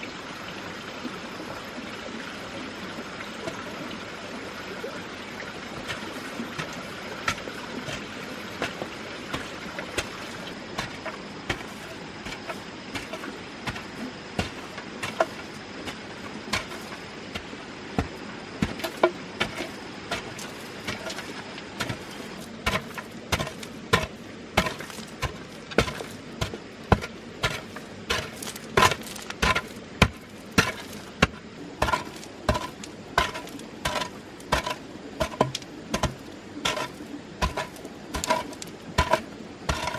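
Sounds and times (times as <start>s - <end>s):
steady background hiss: 0.0s - 39.9s
knife chopping into wood: 21.8s - 39.9s.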